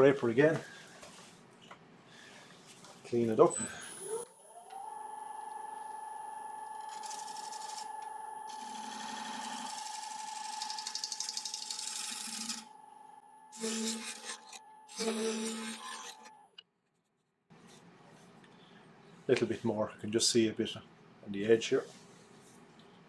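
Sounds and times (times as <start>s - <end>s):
wood lathe whining: 3.6s - 16.6s
scraper cutting spinning wood: 6.8s - 12.7s, 13.6s - 16.4s.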